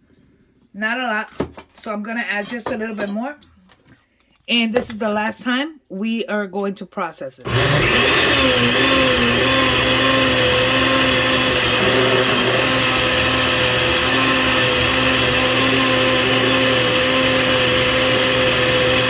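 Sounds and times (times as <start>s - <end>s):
blender motor humming and whining: 7.5s - 19.0s.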